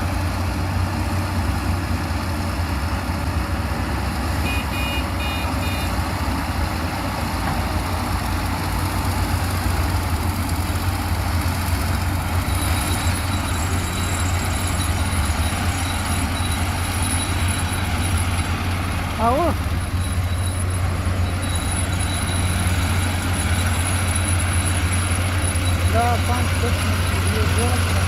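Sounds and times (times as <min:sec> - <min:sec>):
diesel engine running: 0:00.0 - 0:28.0
short electronic beeps: 0:12.4 - 0:18.5, 0:19.2 - 0:28.0.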